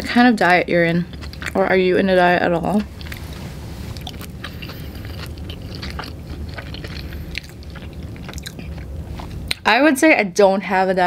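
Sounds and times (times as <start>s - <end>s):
low steady hum: 0.0s - 11.0s
crunchy chewing: 1.0s - 9.6s.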